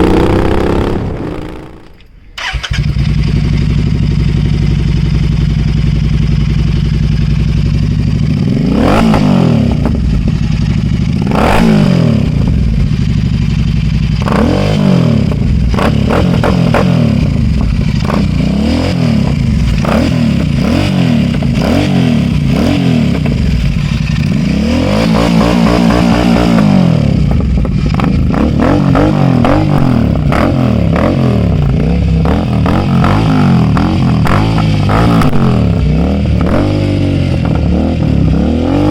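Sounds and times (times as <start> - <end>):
exhaust crackles: 0.0 - 3.7
motorcycle engine revving: 0.0 - 38.9.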